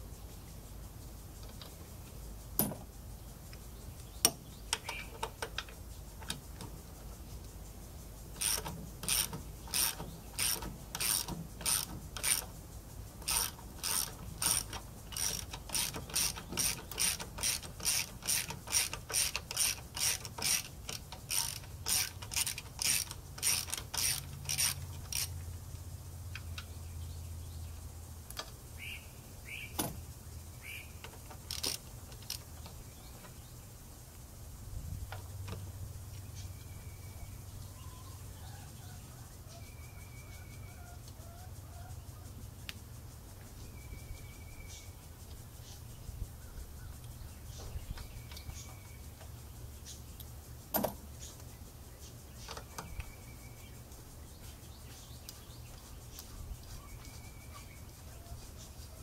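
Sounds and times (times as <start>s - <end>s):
ratchet wrench clicking: 8.3s - 25.4s, 31.0s - 32.7s.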